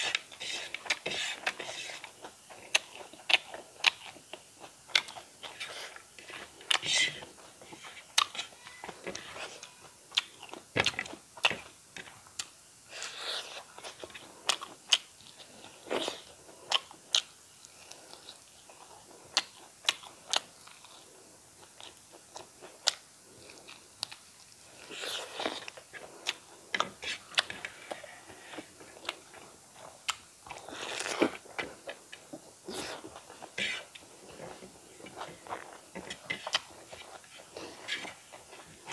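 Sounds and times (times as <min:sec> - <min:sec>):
chewing and crunching: 0:12.3 - 0:38.9.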